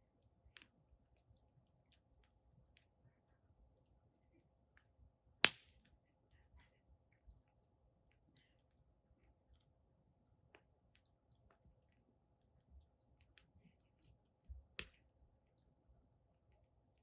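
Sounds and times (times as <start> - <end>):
firewood crackling: 4.3 - 6.6, 7.2 - 17.0
fire pops and snap: 5.4 - 6.0, 14.6 - 15.1.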